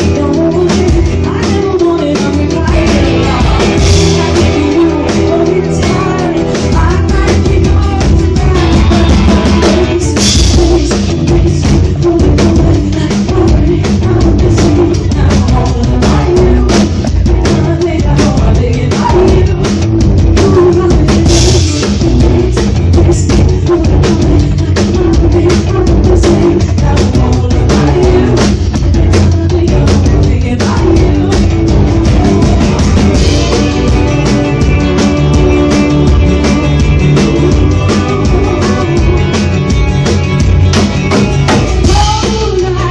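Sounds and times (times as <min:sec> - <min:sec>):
live rock band playing: 0:00.0 - 0:42.9
drum kit hits: 0:30.8 - 0:42.7.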